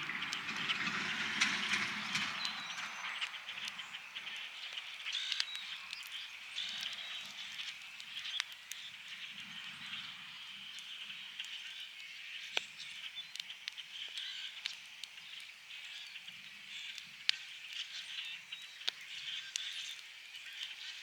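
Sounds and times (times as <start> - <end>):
low distant rumble: 0.0 - 5.0
campfire crackling and popping: 0.0 - 21.0
bird chirps: 0.1 - 14.6.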